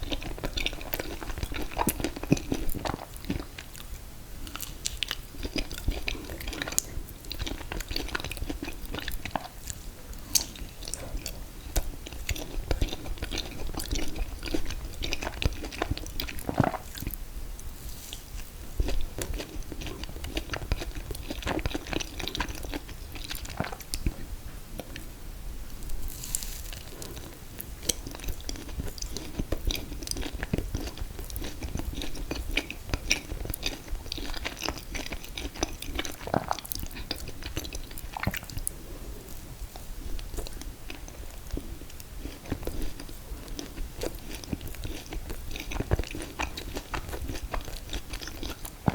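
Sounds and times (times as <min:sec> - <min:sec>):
chewing and biting: 0:00.0 - 0:03.9, 0:04.5 - 0:17.2, 0:18.4 - 0:24.2, 0:26.7 - 0:48.9.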